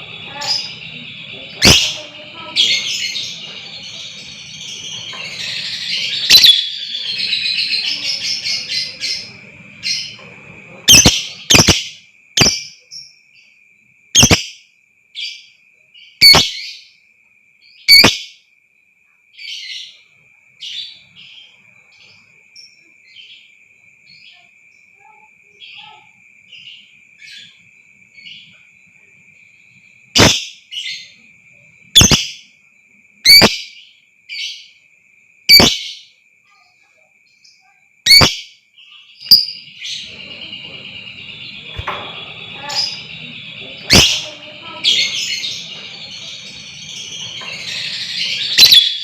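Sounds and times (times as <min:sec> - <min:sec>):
birds chattering: 0:00.0 - 0:13.1, 0:14.2 - 0:14.5, 0:16.0 - 0:16.8, 0:30.1 - 0:32.5, 0:33.3 - 0:34.7, 0:37.4 - 0:49.0
thin high tone: 0:39.3 - 0:49.0.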